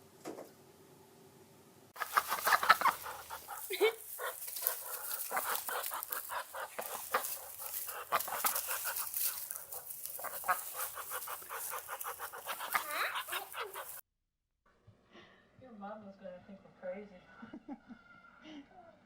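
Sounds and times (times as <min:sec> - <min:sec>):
birds calling: 0:02.0 - 0:14.0.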